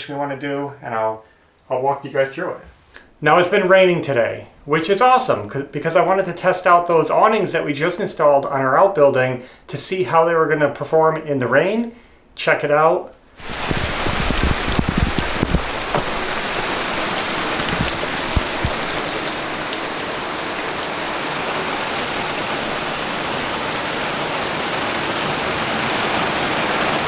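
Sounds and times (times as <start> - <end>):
rain falling: 13.4 - 27.0
sharp taps: 13.7 - 19.1.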